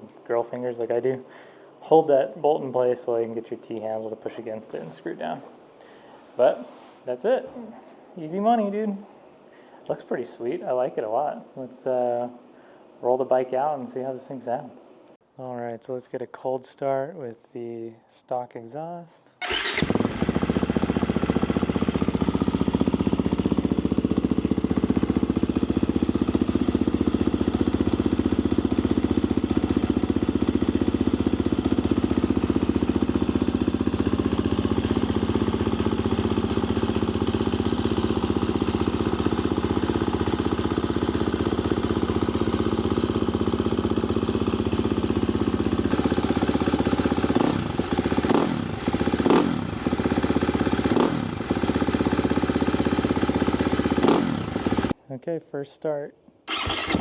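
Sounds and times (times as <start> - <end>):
engine throttle blips: 19.4 - 21.2, 45.9 - 50.1, 56.5 - 57.0
dirt bike engine idling: 19.4 - 55.0, 56.5 - 57.0.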